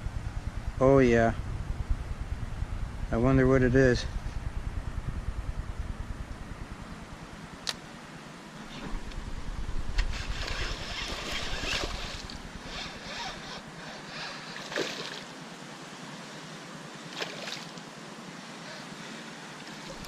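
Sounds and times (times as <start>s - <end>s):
wind buffeting microphone: 0.0s - 7.6s, 8.7s - 13.6s.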